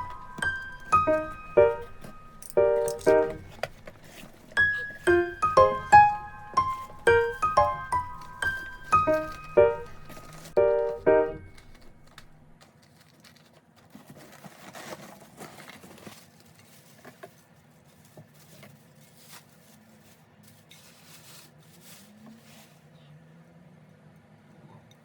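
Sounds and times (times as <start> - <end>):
musical chime: 0.0 - 3.6, 4.6 - 11.9
soft handling clicks and rustling: 0.0 - 21.3.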